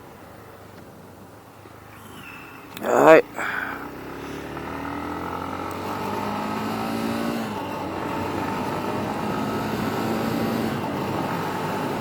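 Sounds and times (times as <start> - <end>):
wind and road noise: 0.0 - 12.0
motorbike engine running: 3.3 - 12.0.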